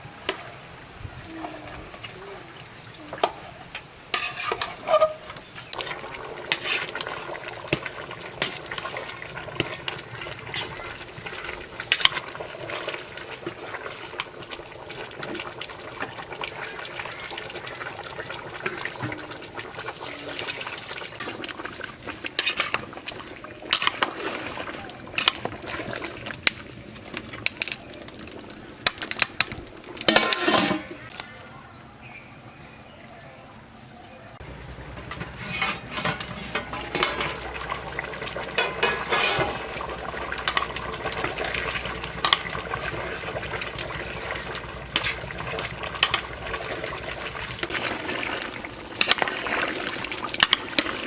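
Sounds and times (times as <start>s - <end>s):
pots and utensils clinking: 3.1s - 14.4s, 18.6s - 27.8s, 28.8s - 31.1s, 35.0s - 51.0s
water sloshing and splashing: 18.6s - 27.2s, 34.7s - 51.0s.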